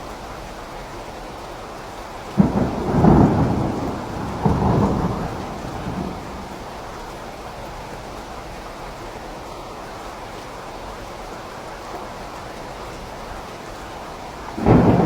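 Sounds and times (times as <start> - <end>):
steady rain: 0.0 - 15.0
thunder clap: 2.4 - 7.0, 14.3 - 15.0.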